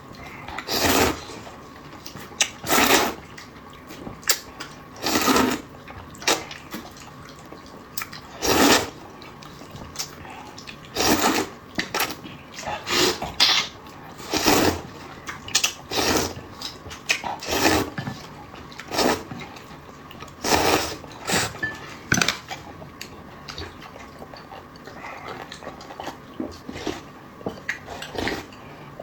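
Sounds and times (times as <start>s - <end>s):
chewing sounds: 0.1s - 29.0s.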